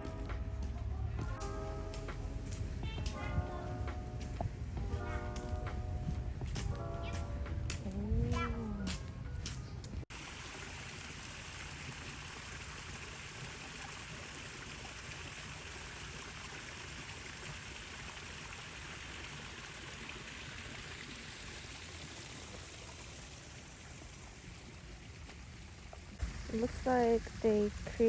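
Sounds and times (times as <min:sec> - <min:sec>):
running water rushing: 0:10.1 - 0:28.0.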